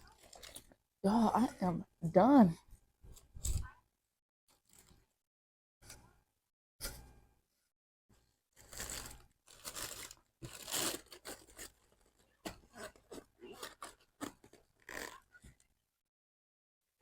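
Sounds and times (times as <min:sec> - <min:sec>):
rustling crinkling handling noise: 0:00.0 - 0:00.8, 0:04.5 - 0:05.2, 0:08.6 - 0:15.7.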